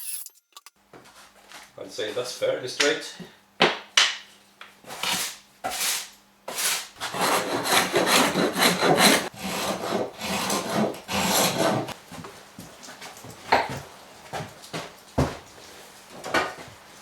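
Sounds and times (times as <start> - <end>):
hand plane shaving wood: 5.0 - 12.0.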